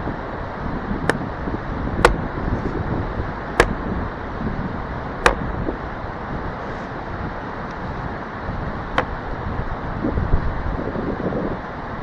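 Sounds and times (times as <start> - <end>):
wooden baton striking axe head: 2.0 - 2.3, 3.6 - 3.8, 5.2 - 5.5.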